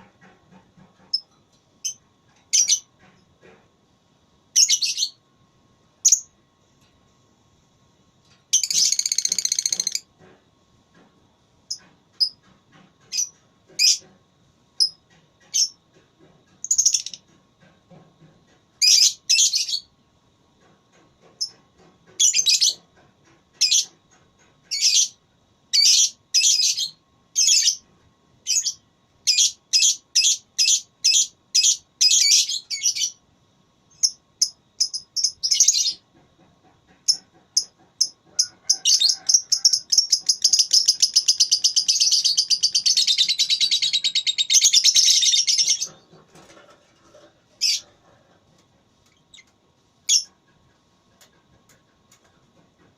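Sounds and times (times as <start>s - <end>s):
lovebird chirping and trilling: 8.6s - 10.0s, 38.9s - 46.0s, 50.1s - 50.3s.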